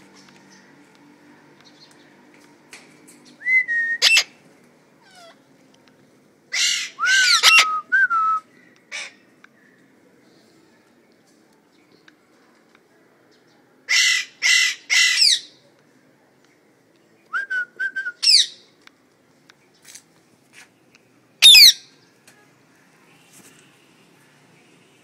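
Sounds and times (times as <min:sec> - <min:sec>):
parrot squawking: 0:04.0 - 0:04.3, 0:06.5 - 0:07.7, 0:21.4 - 0:21.8.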